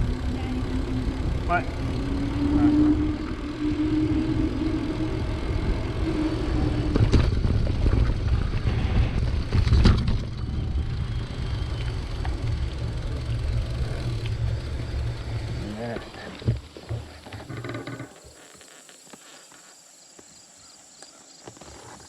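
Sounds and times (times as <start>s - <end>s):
wind on microphone: 0.0s - 13.0s
bicycle road noise: 0.0s - 22.0s.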